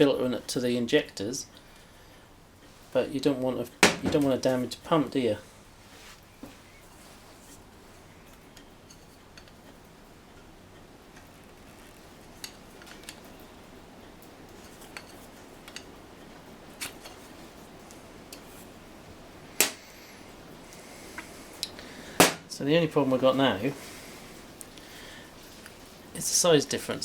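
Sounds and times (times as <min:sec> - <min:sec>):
sharp knock: 0:03.8 - 0:04.2.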